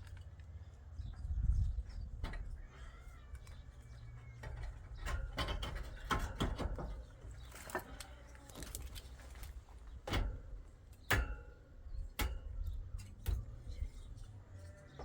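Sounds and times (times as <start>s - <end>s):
clicks and clattering knocks: 4.4s - 7.1s.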